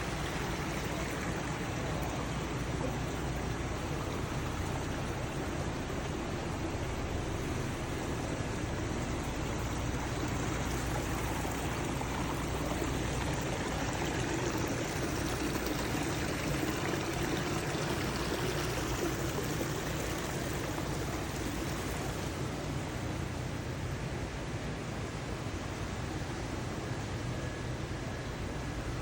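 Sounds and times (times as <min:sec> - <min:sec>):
water running: 0:00.0 - 0:22.7.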